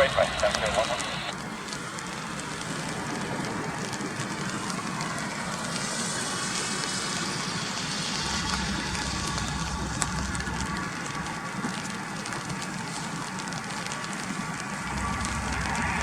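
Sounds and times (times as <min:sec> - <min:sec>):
steady rainfall: 0:00.0 - 0:16.0
low rumble: 0:08.1 - 0:11.4, 0:14.8 - 0:16.0.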